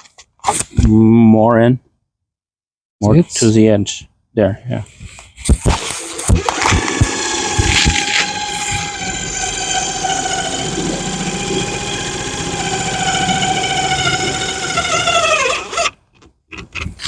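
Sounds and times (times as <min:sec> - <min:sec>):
cordless drill driving screw: 0:05.7 - 0:16.0.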